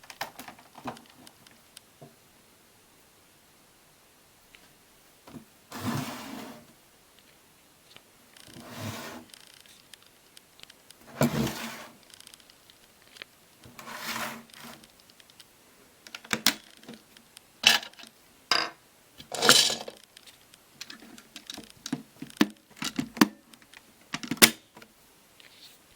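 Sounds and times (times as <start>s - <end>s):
scraping and rustling: 7.9s - 15.4s
plastic toy clicks and knocks: 20.8s - 24.6s.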